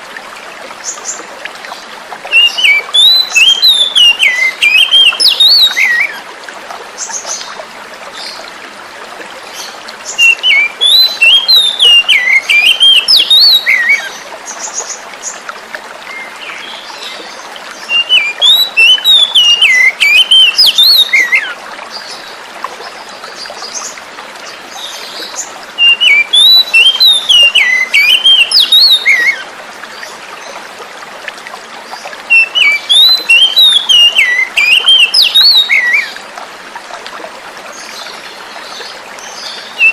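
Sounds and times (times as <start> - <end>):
flowing water rushing: 0.0 - 39.9
bird singing warbling phrases: 2.3 - 6.2, 9.5 - 15.4, 16.1 - 30.5, 31.9 - 36.2, 37.8 - 39.9.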